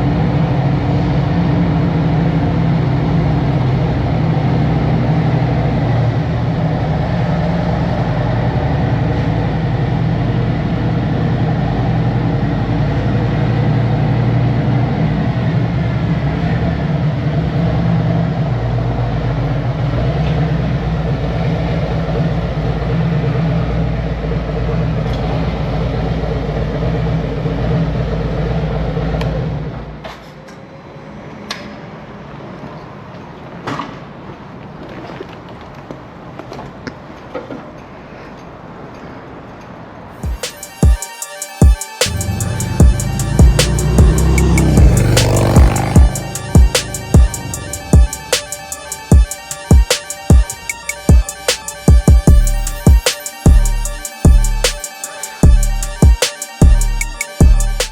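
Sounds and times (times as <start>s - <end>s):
motorcycle engine idling: 42.1s - 49.3s.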